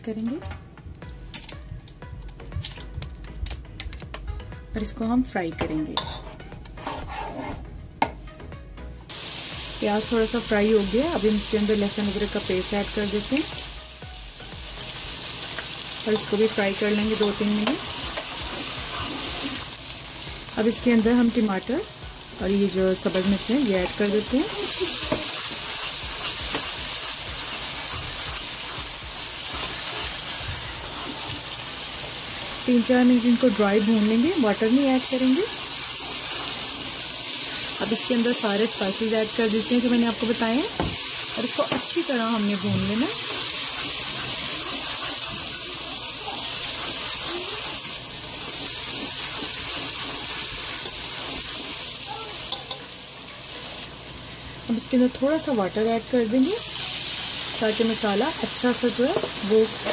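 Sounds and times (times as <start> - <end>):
spoon scraping pot: 6.0 - 7.7, 17.7 - 19.6, 42.7 - 47.7, 48.4 - 51.9
vegetables sizzling in oil: 9.1 - 59.9.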